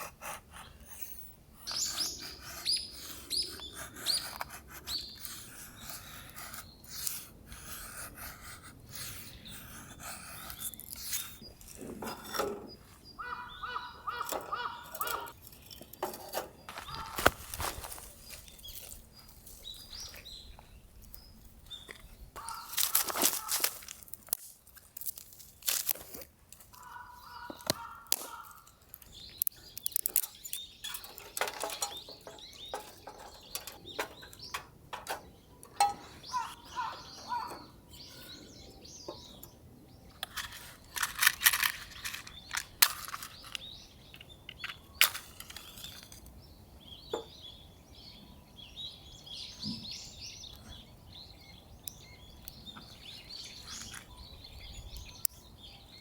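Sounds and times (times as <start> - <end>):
small birds chirping: 0.0 - 56.0
clicks knocks and rustling: 29.8 - 36.2.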